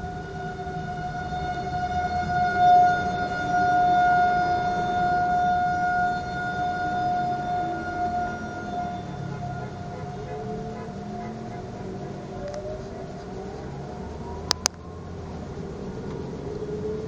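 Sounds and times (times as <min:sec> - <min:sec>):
fire engine siren steady tone: 0:00.0 - 0:17.0
low rumble of traffic: 0:00.0 - 0:17.0.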